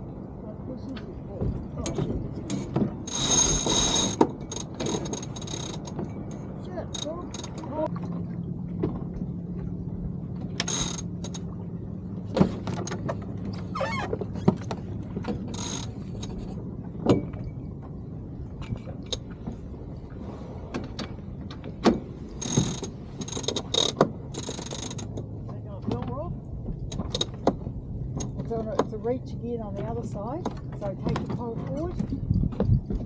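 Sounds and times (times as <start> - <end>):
steady low hum: 0.0 - 32.9
winch ratcheting: 2.5 - 7.9, 22.4 - 25.3.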